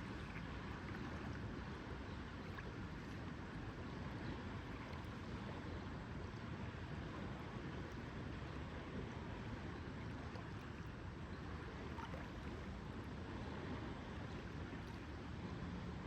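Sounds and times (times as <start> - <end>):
lake water lapping: 0.0 - 3.6, 11.6 - 15.8
wind: 0.0 - 16.0.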